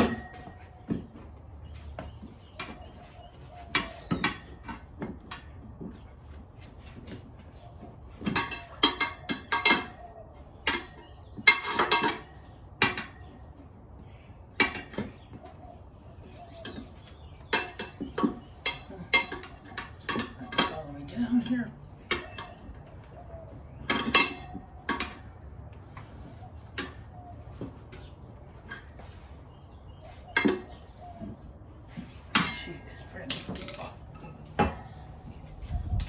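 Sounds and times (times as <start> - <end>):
tire spoons clinking on rim: 0.0 - 0.9, 8.2 - 13.5, 16.4 - 23.0, 23.6 - 25.4, 27.9 - 31.3, 32.2 - 35.4.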